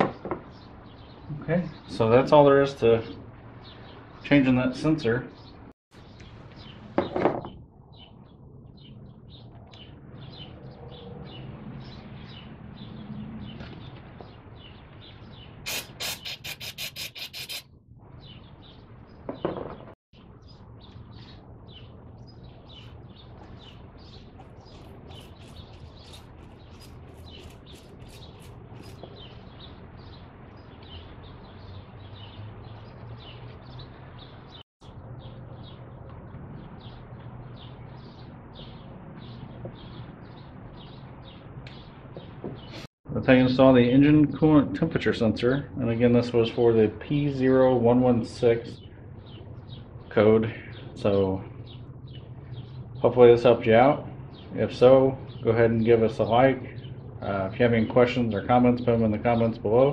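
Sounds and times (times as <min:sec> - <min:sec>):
small birds chirping: 0:00.1 - 0:43.5, 0:45.5 - 0:59.9.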